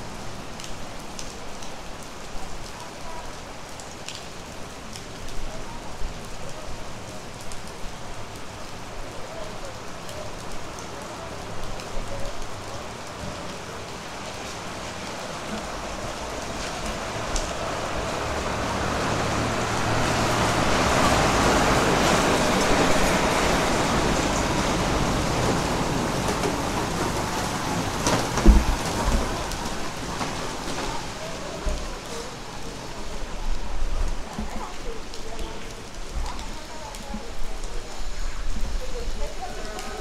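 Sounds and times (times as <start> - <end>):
rain falling: 0.0 - 40.0
low knocks: 28.1 - 29.3.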